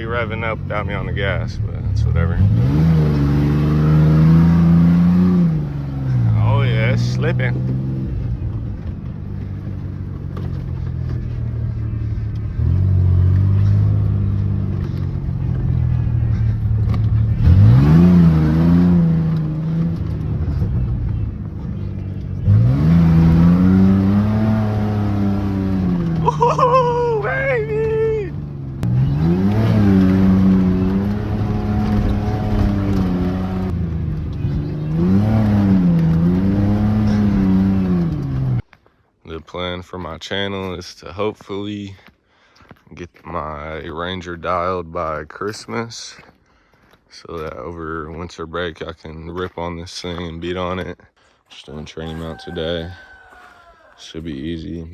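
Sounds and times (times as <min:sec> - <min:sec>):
pickup engine revving with leaky exhaust: 0:00.0 - 0:26.7, 0:27.3 - 0:38.7.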